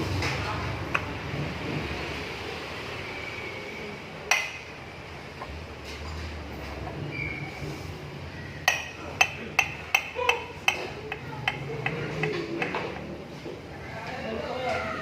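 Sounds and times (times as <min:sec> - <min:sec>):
metal tool tapping on metal: 0:04.3 - 0:04.7, 0:08.6 - 0:13.1.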